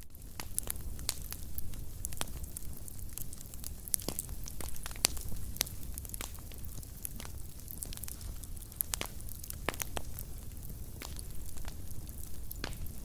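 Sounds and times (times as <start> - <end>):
fire pops and snaps: 0.0 - 13.0
low rumble of burning: 0.0 - 13.0
wood fire crackling: 0.0 - 13.0.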